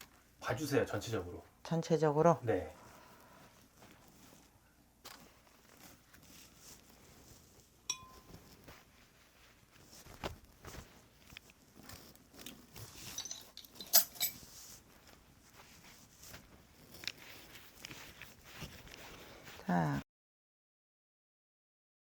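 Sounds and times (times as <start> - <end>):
small hard objects clinking: 12.4 - 14.4.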